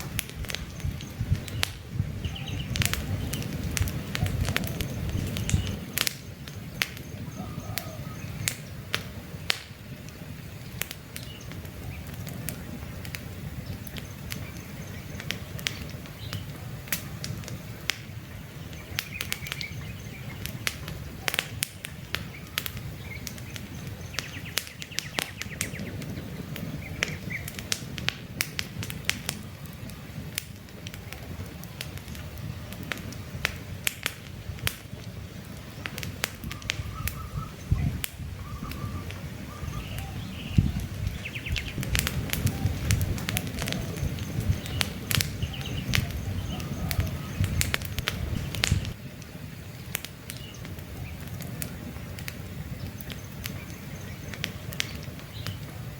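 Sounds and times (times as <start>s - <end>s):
birds chirping: 0.0s - 27.8s, 34.9s - 55.9s
campfire crackling and popping: 0.0s - 55.9s.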